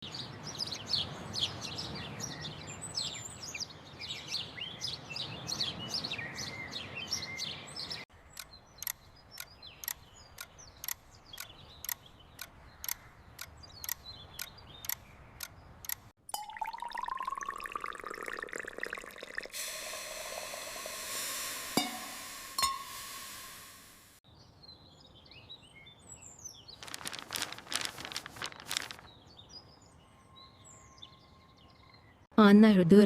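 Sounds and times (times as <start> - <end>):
dense chorus of bird chirps: 0.0 - 15.9, 24.3 - 26.9
background hiss: 19.5 - 24.2.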